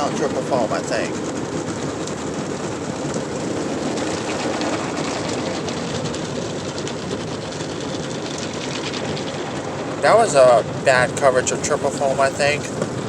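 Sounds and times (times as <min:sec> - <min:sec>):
car wash spray and machinery: 0:00.0 - 0:13.0.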